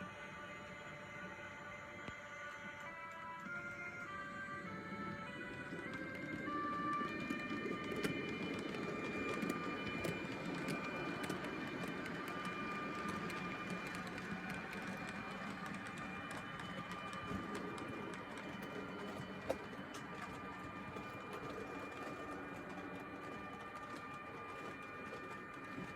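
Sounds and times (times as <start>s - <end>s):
background music: 0.0s - 25.9s
model train motor whine: 0.0s - 25.9s
wheel clicks: 5.7s - 25.9s.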